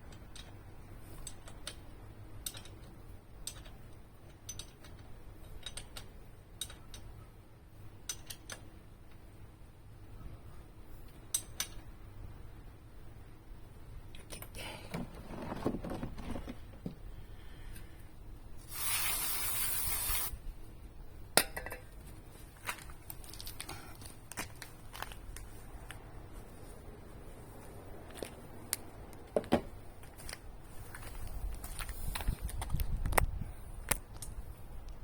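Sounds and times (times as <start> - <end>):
tools clicking and knocking: 0.1 - 0.6, 1.2 - 7.2, 8.0 - 9.2, 11.3 - 11.9
aerosol spray can hiss: 18.6 - 20.3.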